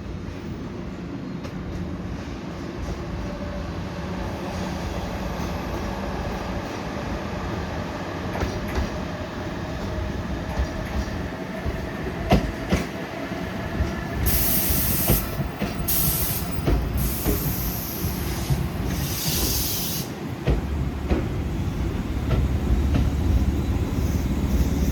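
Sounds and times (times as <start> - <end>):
train running hum: 0.0 - 24.9
train wheels knocking on rail joints: 10.4 - 13.0, 13.8 - 19.6, 20.4 - 23.6
air hissing: 14.2 - 20.2.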